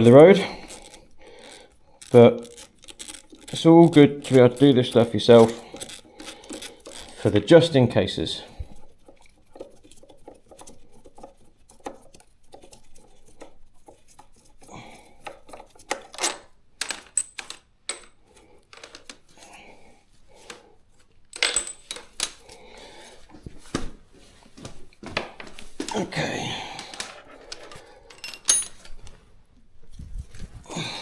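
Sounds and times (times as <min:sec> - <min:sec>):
metal tools clinking: 0:00.0 - 0:07.5, 0:21.3 - 0:22.6, 0:26.8 - 0:29.2.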